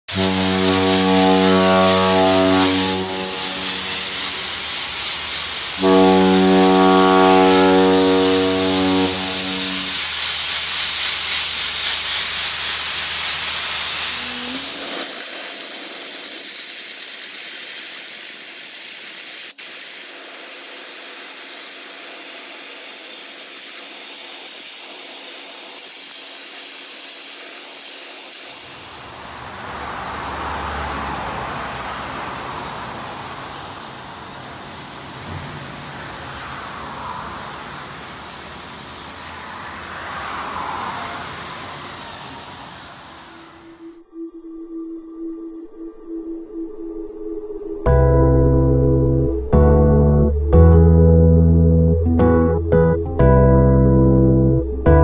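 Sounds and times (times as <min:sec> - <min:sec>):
blasting nozzle hissing: 0:00.0 - 0:43.9
droning hum: 0:00.1 - 0:11.2, 0:12.2 - 0:16.5, 0:28.7 - 0:43.8.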